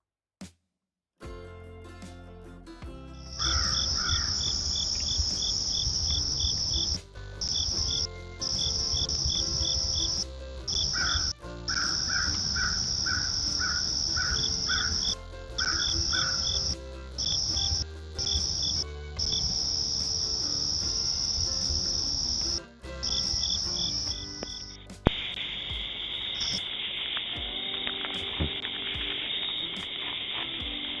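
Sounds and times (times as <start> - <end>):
insect trill: 3.3 - 29.9
low insect chirp: 3.4 - 27.2.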